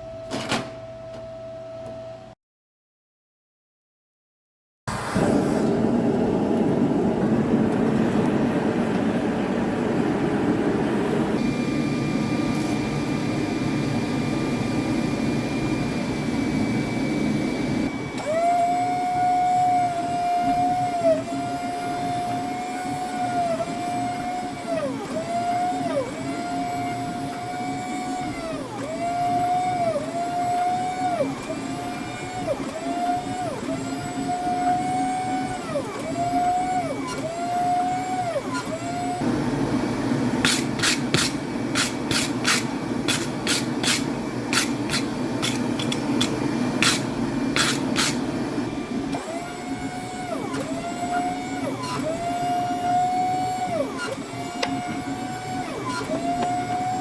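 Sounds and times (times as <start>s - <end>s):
power tool motor whining: 11.3s - 39.6s, 40.2s - 57.0s.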